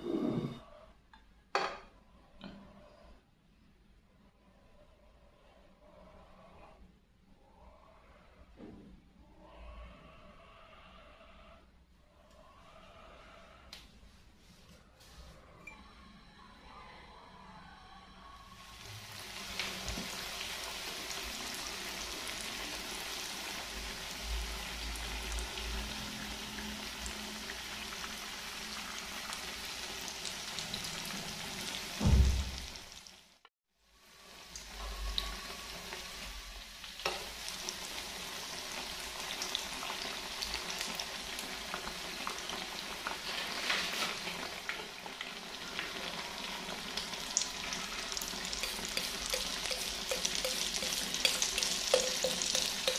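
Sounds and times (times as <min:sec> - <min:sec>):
food sizzling in hot oil: 0:18.8 - 0:33.4, 0:34.0 - 0:52.9
loud low thump: 0:32.0 - 0:32.6.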